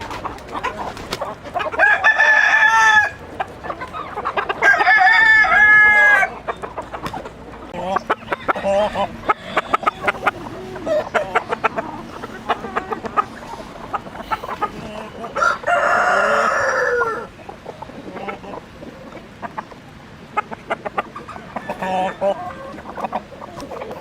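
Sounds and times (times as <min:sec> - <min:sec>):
chickens clucking: 0:00.0 - 0:24.0
rooster crowing: 0:01.7 - 0:03.2, 0:04.6 - 0:06.4, 0:08.7 - 0:10.2, 0:15.2 - 0:17.4, 0:21.3 - 0:22.9.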